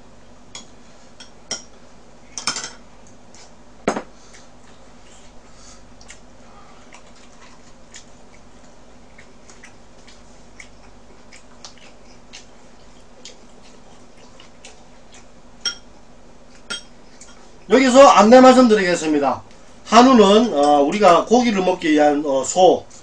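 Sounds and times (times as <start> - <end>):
steady low hum: 0.0 - 23.0
chewing clicks and mouth noises: 4.3 - 15.4.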